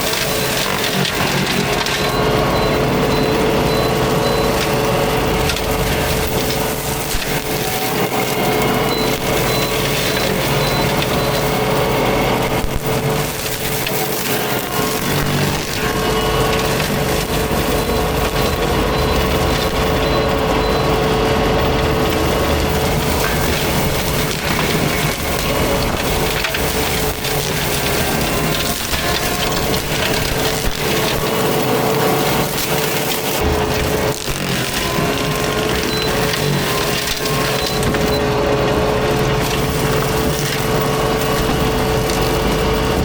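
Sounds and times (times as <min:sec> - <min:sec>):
constant whine: 0:00.0 - 0:43.0
mulcher grinding brush: 0:00.0 - 0:43.0
sharp wood cracks: 0:22.4 - 0:38.1.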